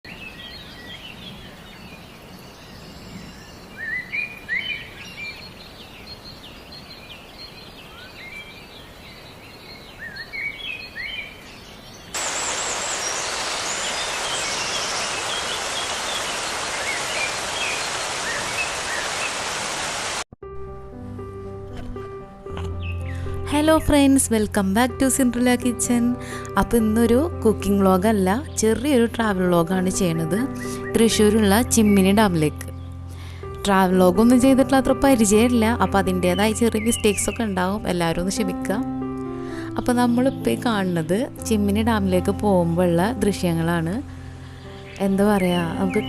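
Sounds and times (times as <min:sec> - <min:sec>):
songbirds chirping and whistling: 0:00.1 - 0:19.6
loud steady rushing noise: 0:12.2 - 0:20.2.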